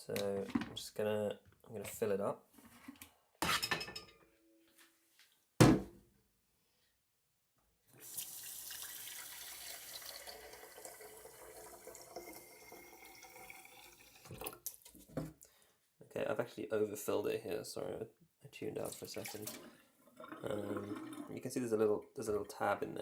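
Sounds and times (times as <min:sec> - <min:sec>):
tap water filling kettle: 0:08.0 - 0:14.7, 0:18.9 - 0:21.4.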